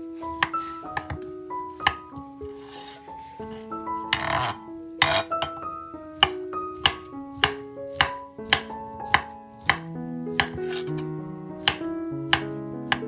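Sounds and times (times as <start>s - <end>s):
background music: 0.0s - 13.0s
knife chopping on cutting board: 0.4s - 1.2s, 1.8s - 3.0s, 4.2s - 5.6s, 6.2s - 11.0s, 11.6s - 13.0s.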